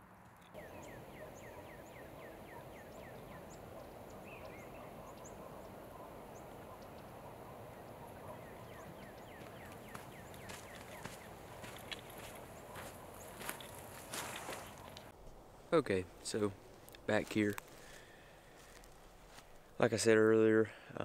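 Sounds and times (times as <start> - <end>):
faint high bird chirps: 0.5 - 15.0.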